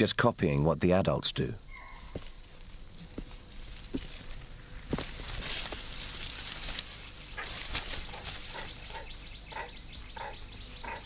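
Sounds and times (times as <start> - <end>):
rustling: 1.9 - 9.1.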